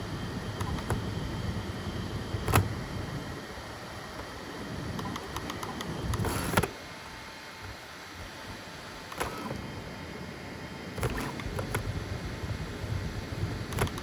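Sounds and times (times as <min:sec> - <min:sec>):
printer fan hum: 0:00.0 - 0:14.0
stepper motor movement and clicks: 0:00.5 - 0:01.3, 0:02.3 - 0:03.0, 0:04.0 - 0:06.8, 0:09.0 - 0:09.8, 0:10.9 - 0:12.0, 0:13.6 - 0:14.0.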